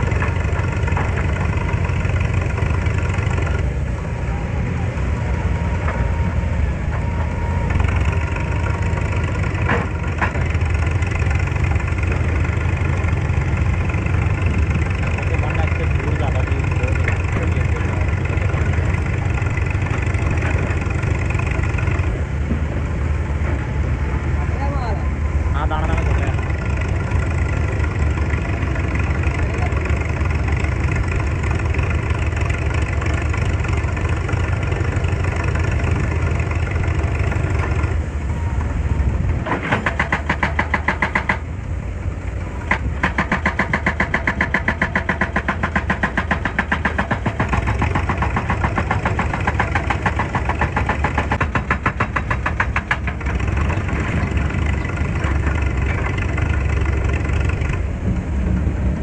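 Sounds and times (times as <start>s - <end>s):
excavator diesel engine running: 0.0s - 59.0s
rapid regular clattering: 42.6s - 57.8s.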